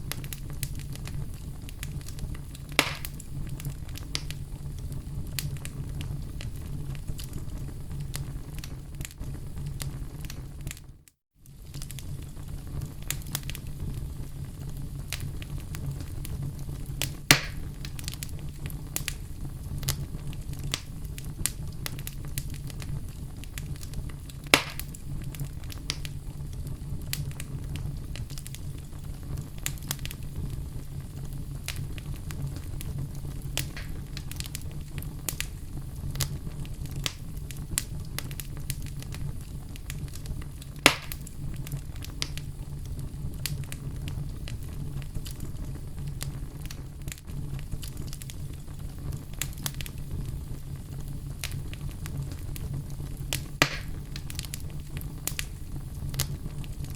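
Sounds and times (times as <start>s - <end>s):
wood fire burning: 0.0s - 56.9s
sharp loud pops from logs: 2.8s - 3.1s, 17.3s - 17.6s, 24.6s - 24.8s, 40.9s - 41.2s, 53.6s - 54.0s.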